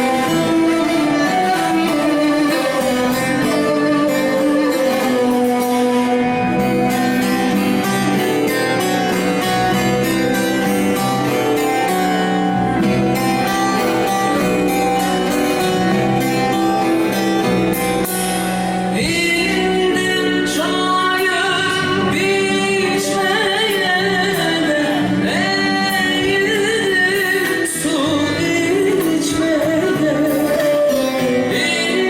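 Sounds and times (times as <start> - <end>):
plucked strings: 0.0 - 32.0
woman singing: 18.9 - 32.0.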